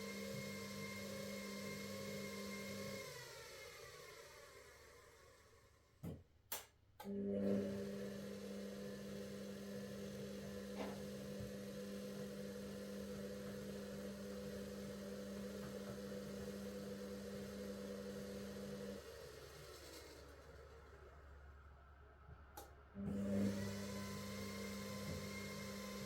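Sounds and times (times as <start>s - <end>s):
washing machine motor hum: 7.0s - 26.0s.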